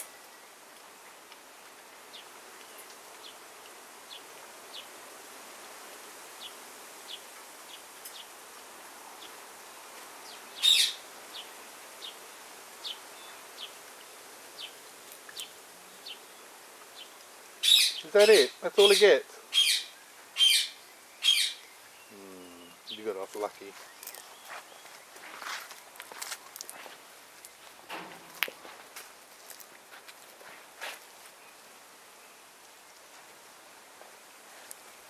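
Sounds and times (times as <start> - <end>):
parrot squawk: 10.6 - 11.0, 17.6 - 21.6
parrots chirping: 10.6 - 11.0, 17.6 - 21.6.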